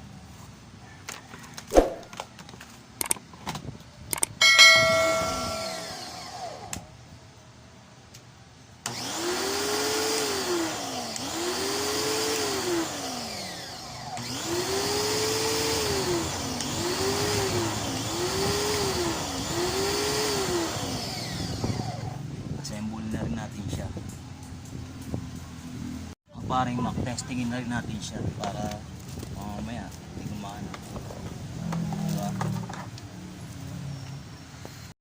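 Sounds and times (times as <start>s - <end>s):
pressure washer motor surging: 8.9s - 22.2s.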